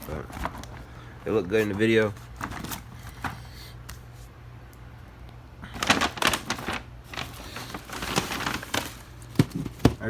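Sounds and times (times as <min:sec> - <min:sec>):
packaging rustling and clattering: 0:00.0 - 0:03.5, 0:05.7 - 0:10.0.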